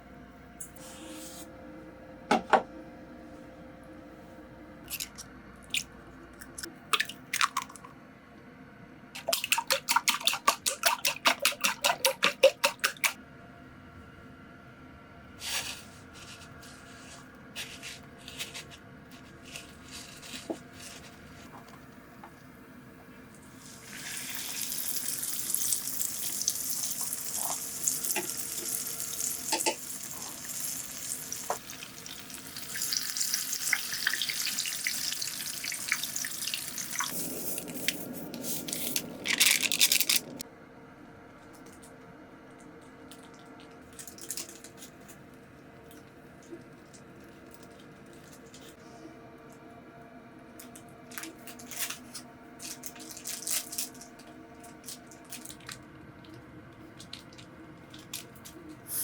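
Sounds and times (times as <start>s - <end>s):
food sizzling in a pan: 23.7s - 37.5s.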